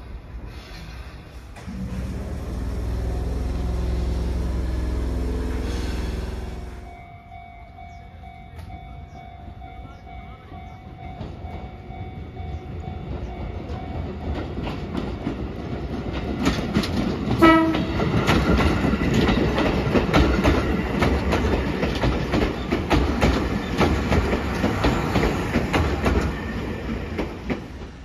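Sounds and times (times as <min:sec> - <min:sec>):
train wheels clacking: 0:10.7 - 0:28.0
train horn blast: 0:17.4 - 0:18.0.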